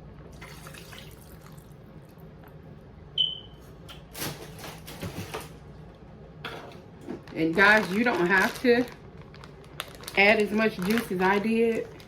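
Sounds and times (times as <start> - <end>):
plastic bag rustling: 4.1 - 5.6, 7.0 - 12.0.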